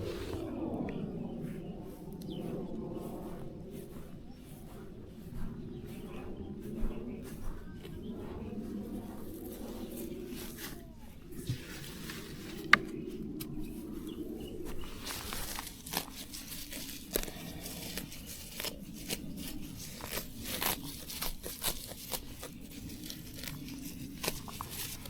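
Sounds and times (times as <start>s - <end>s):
plant stems tearing and crackling: 15.0s - 25.0s.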